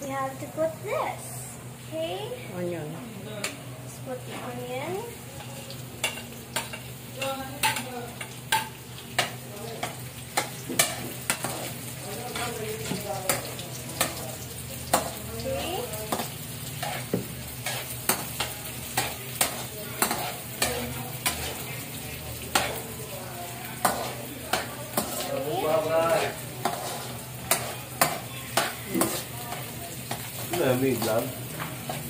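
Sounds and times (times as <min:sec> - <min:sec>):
onions frying in oil: 0:00.0 - 0:32.0
metal ladle scraping a wok: 0:16.8 - 0:18.4, 0:26.1 - 0:29.3.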